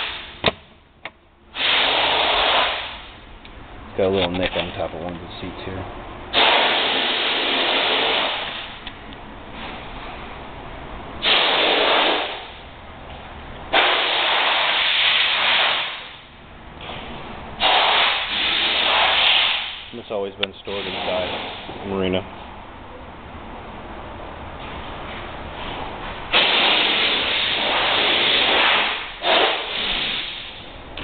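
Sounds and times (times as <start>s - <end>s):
hissing spray bursts: 1.5s - 3.1s, 6.3s - 8.7s, 11.2s - 12.6s, 13.7s - 16.2s, 17.6s - 19.9s, 20.7s - 21.7s, 26.3s - 30.6s.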